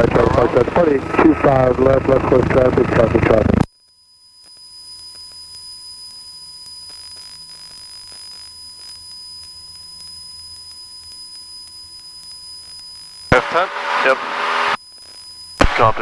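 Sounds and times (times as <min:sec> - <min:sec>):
aircraft engine low hum: 0:00.0 - 0:03.6
high-pitched electrical whines: 0:00.0 - 0:16.0.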